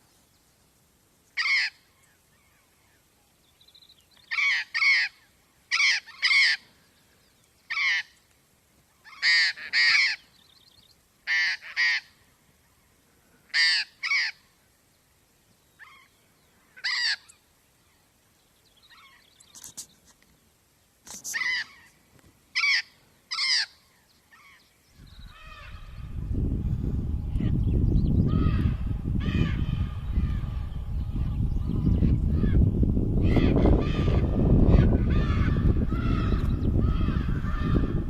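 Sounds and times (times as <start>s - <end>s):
jay giving harsh raspy calls: 4.3s - 6.6s, 9.1s - 10.2s, 11.3s - 12.1s, 13.5s - 14.4s, 22.6s - 23.8s, 25.2s - 26.2s, 28.3s - 30.6s.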